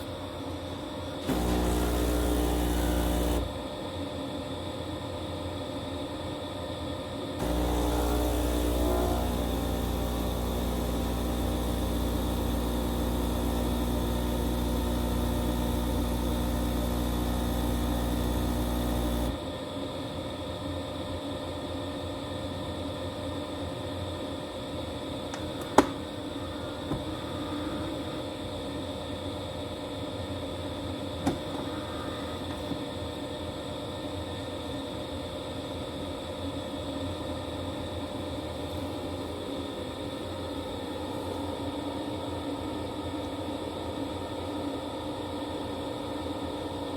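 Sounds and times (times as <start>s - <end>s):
espresso machine humming: 1.2s - 3.6s, 7.4s - 19.5s.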